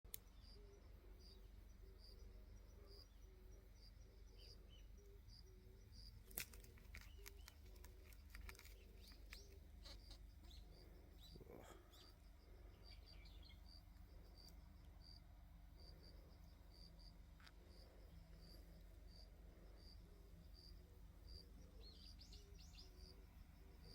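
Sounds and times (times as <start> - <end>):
small clicks and rustles: 6.2 - 10.6
faint high chirp: 20.1 - 23.9.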